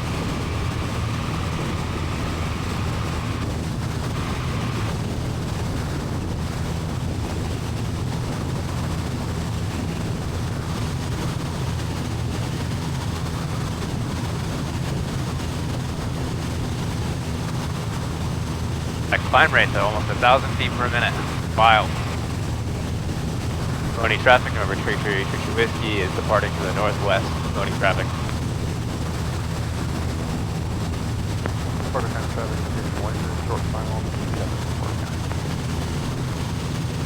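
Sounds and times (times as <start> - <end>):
aircraft engine droning: 0.0 - 37.0.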